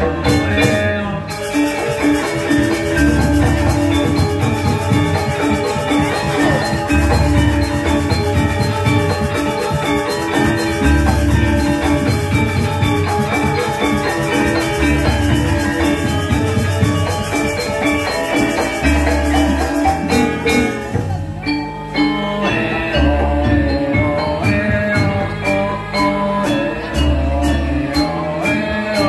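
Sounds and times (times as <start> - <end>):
drums: 0.0 - 29.0
metallophones ringing: 0.0 - 29.0.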